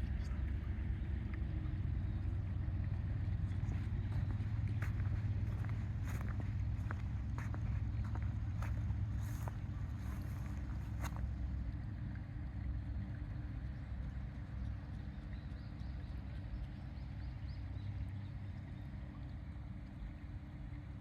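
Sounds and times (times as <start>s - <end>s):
wind buffeting microphone: 1.9s - 11.4s.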